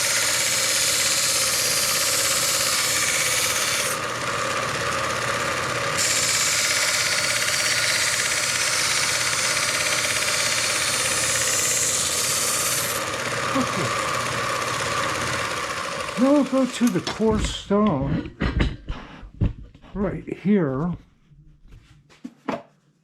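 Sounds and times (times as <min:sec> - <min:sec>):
knife grinding on belt grinder: 0:00.0 - 0:17.6
motor hum: 0:00.0 - 0:18.8.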